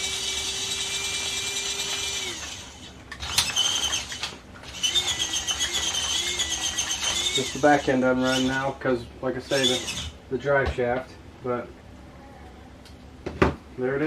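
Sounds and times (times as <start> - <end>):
small electric motor whining: 0.0 - 8.7, 9.5 - 10.2.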